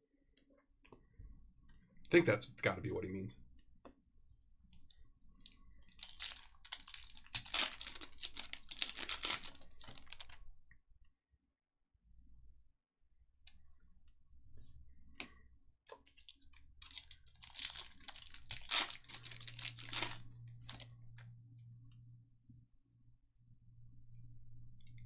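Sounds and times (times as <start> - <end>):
foil wrapper crinkling and tearing: 5.4 - 10.5, 16.1 - 20.9.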